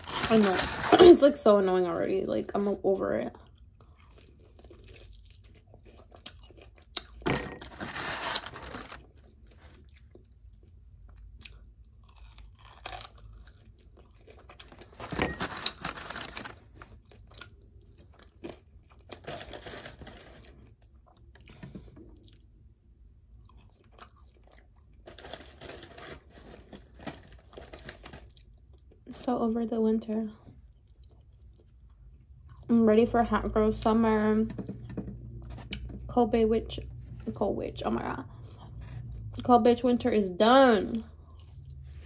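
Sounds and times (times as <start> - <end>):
person chewing crunchy food: 3.4 - 7.2, 7.8 - 29.0, 30.6 - 32.7, 41.2 - 42.0.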